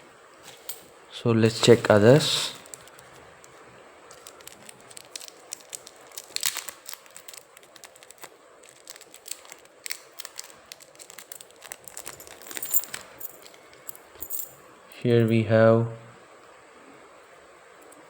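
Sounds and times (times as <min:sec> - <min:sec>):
coin packets crinkling: 0:01.5 - 0:03.2, 0:04.1 - 0:14.5
coins clinking: 0:04.1 - 0:14.6.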